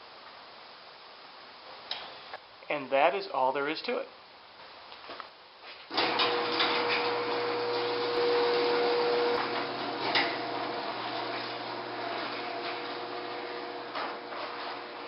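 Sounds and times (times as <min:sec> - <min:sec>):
roller clicks and knocks: 0:05.9 - 0:07.6, 0:09.3 - 0:15.0
garage door opener humming: 0:05.9 - 0:15.0.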